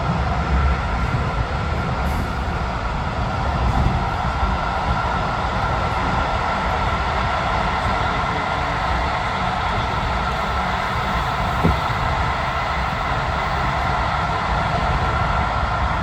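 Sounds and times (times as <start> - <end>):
train rumble and hiss: 0.0 - 16.0
short knock: 11.6 - 11.9.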